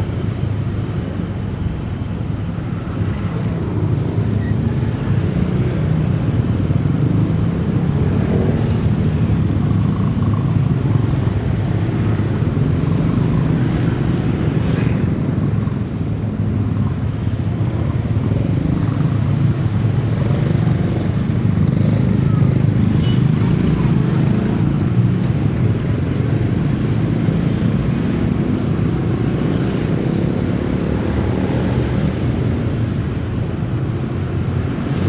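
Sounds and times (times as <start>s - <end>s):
road and traffic noise: 0.0s - 35.0s
motorcycle engine running: 4.8s - 14.4s.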